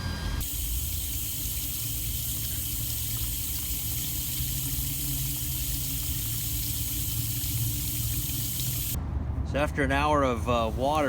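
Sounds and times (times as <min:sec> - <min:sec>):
water rushing from a hose: 0:00.4 - 0:09.0.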